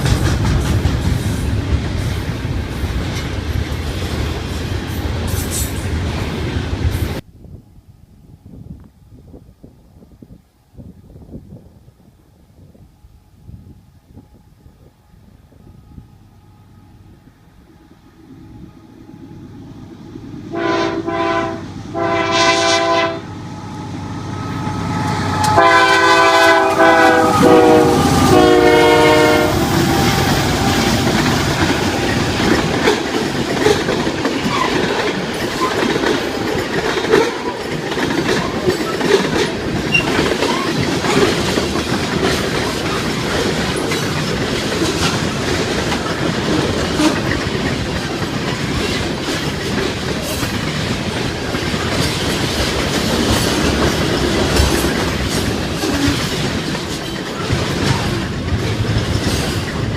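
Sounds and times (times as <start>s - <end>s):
train rumbling by: 0.0s - 59.9s
locomotive air horn blasts: 20.5s - 32.1s
wheels clicking over rail joints: 29.6s - 59.9s.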